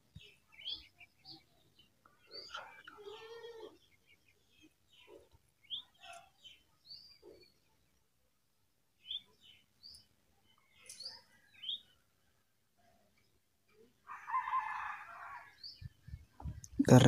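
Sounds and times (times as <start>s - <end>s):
faint bird chirps: 0.1s - 8.0s, 9.0s - 12.0s.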